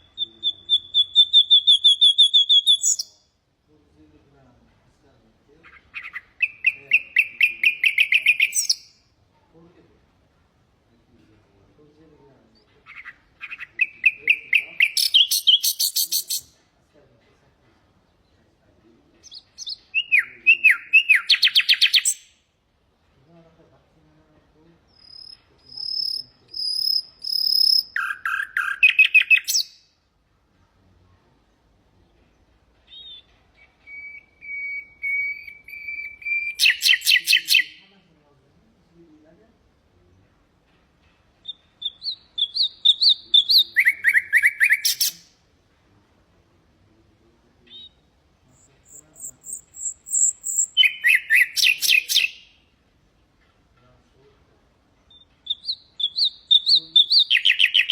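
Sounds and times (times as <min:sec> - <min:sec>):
nightingale singing: 0:00.0 - 0:03.4, 0:05.6 - 0:09.1, 0:12.4 - 0:16.6, 0:19.2 - 0:22.4, 0:24.9 - 0:30.0, 0:32.0 - 0:37.9, 0:41.3 - 0:45.4, 0:47.6 - 0:52.7, 0:55.0 - 0:57.9.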